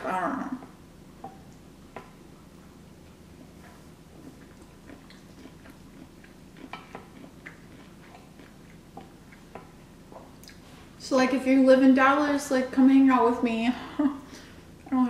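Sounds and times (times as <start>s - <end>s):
person chewing: 1.2s - 10.7s.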